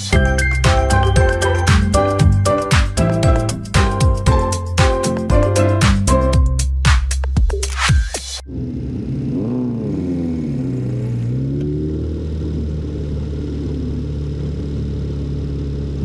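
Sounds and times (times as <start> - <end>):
engine revving: 8.4 - 16.0.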